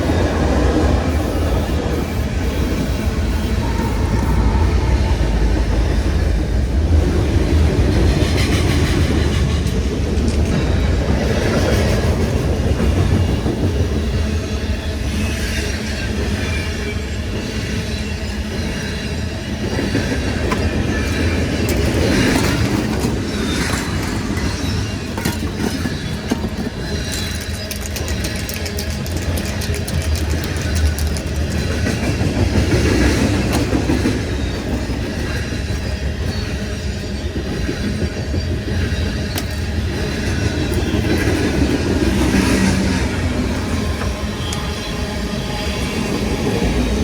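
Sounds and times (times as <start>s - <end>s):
freight train rumbling past: 0.0s - 47.0s
wheels clacking over rail joints: 19.7s - 36.6s.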